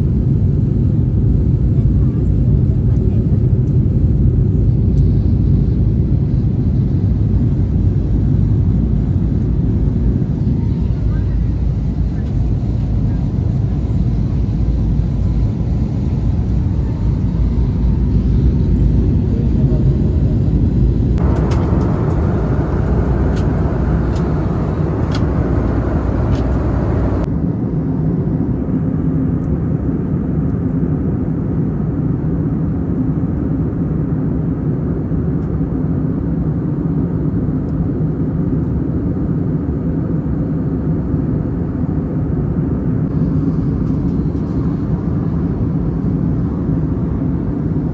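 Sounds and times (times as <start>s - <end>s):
jet engine cabin rumble: 6.7s - 27.3s, 43.0s - 47.9s.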